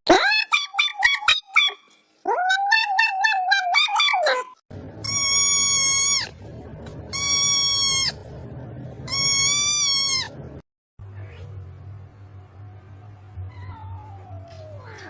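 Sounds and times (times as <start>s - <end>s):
high-pitched animal calls: 0.1s - 6.4s, 7.1s - 8.2s, 9.1s - 10.4s
low hum: 4.7s - 14.8s.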